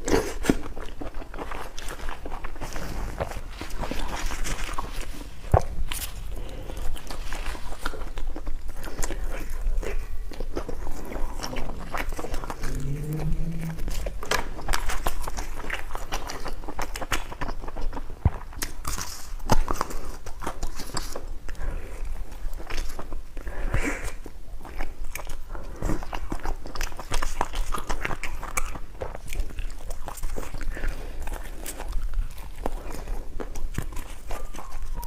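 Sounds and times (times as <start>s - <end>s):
person chewing food: 0.0s - 35.0s
low hum: 11.4s - 16.1s.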